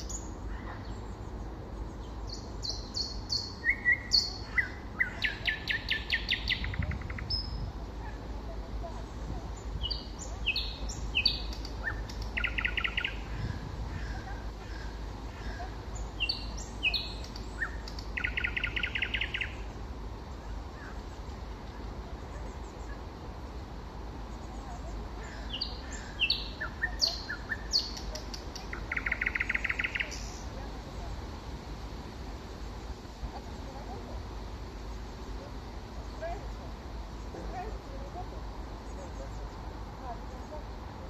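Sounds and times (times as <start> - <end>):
nightingale singing: 0.0 - 7.8, 8.9 - 21.4, 24.3 - 31.2.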